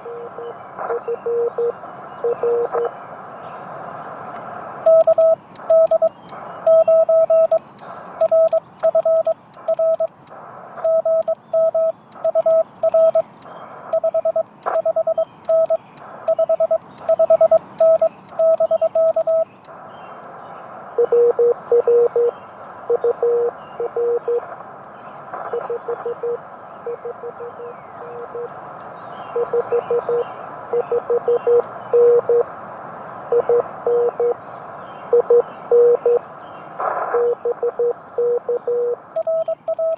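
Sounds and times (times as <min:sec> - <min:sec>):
lower-pitched morse signal: 0:04.9 - 0:10.3, 0:10.9 - 0:19.6, 0:39.2 - 0:39.9
morse code sidetone: 0:04.9 - 0:19.7, 0:37.6 - 0:39.9
morse key clicks: 0:04.9 - 0:19.7, 0:39.2 - 0:39.9.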